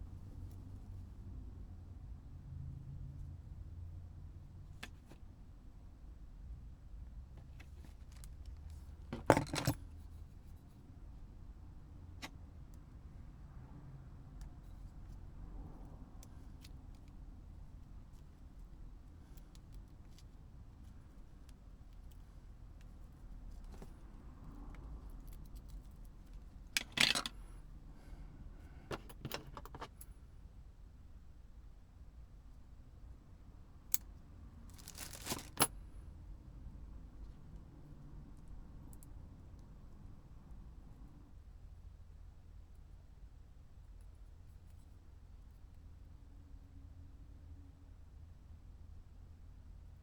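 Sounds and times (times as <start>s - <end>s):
light clicks of small parts: 17.9s - 27.5s, 38.3s - 39.8s.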